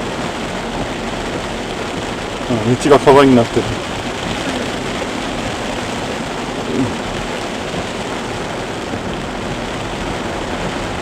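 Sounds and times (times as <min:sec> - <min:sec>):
heavy rain pouring: 0:00.0 - 0:11.0
rainwater running across road: 0:00.0 - 0:11.0.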